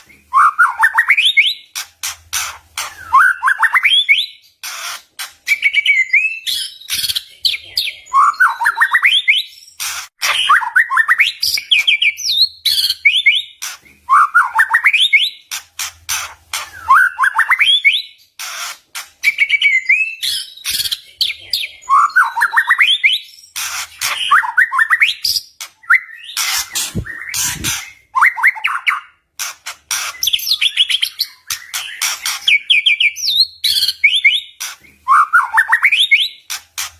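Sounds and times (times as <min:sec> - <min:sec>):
bird singing whistled notes: 0:19.2 - 0:21.1, 0:30.2 - 0:36.4.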